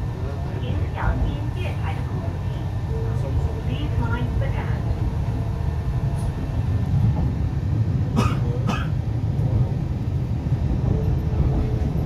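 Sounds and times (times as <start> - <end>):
electric train rumbling: 0.0 - 12.0
person coughing: 8.2 - 9.0.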